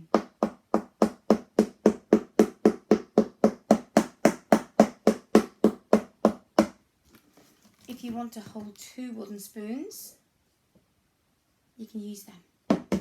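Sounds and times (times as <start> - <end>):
wooden spoon drumming on cardboard box: 0.0 - 6.8, 12.7 - 13.0.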